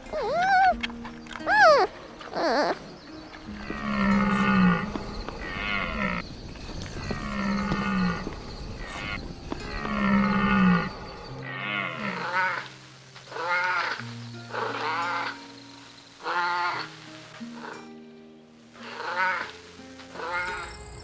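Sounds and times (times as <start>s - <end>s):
short animal calls: 0.0s - 3.4s.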